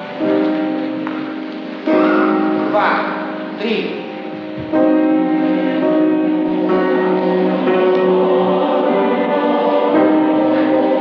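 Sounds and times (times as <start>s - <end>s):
mixed choir singing chords: 0.0s - 11.0s.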